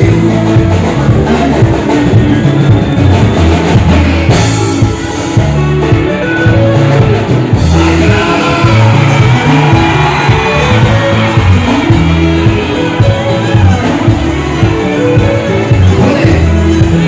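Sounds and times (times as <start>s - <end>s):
live band music: 0.0s - 17.0s
strong bass line: 0.0s - 17.0s
person singing: 3.6s - 17.0s.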